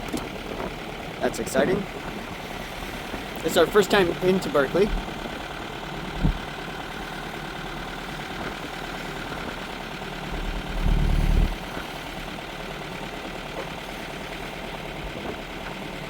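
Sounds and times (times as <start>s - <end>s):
boat engine running: 0.0s - 16.0s
low rumble: 4.8s - 7.2s, 8.5s - 12.9s.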